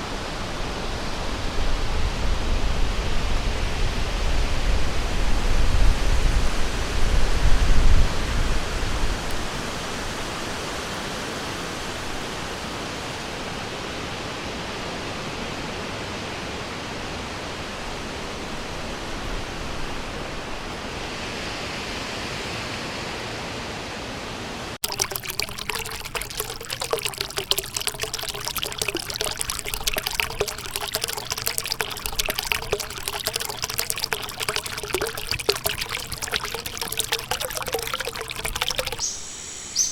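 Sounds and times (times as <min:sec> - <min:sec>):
stream water rushing: 0:24.8 - 0:39.1
water trickling and splashing: 0:24.8 - 0:39.2.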